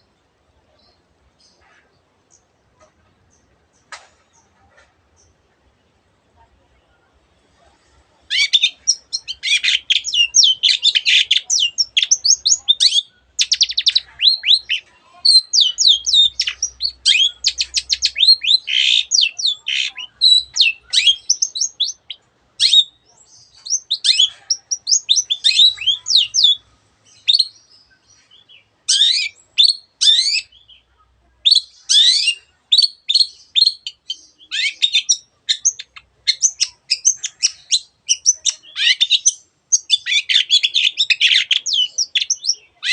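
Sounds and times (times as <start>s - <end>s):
bird singing trills and whistles: 8.3s - 42.9s.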